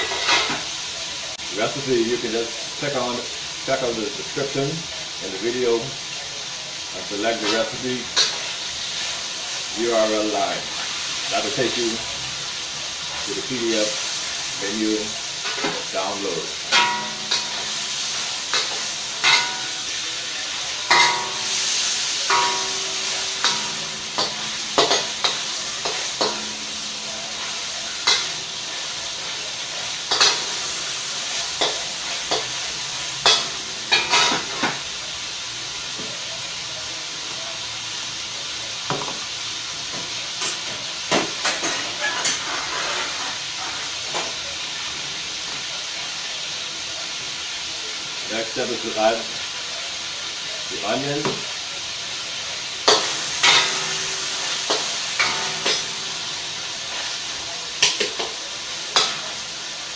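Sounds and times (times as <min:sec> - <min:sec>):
chicken sizzling in oil: 0:00.0 - 0:59.9
metal utensil scraping wok: 0:07.1 - 0:12.3, 0:13.0 - 0:35.0, 0:41.3 - 0:44.3, 0:52.3 - 0:59.9.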